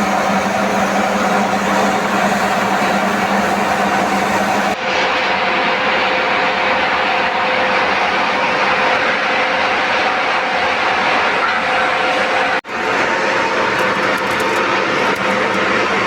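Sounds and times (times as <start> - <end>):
power tool cutting steel: 0.0 - 4.8.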